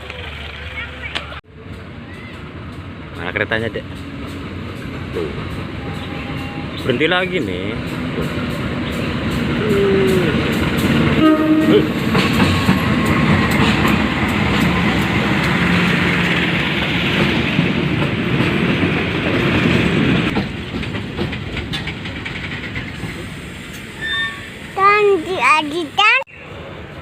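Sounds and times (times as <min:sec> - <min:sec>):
diesel train rumble: 0:00.0 - 0:27.0
train wheels clattering on track: 0:02.4 - 0:24.0
train horn blast: 0:05.7 - 0:06.8, 0:11.2 - 0:12.0.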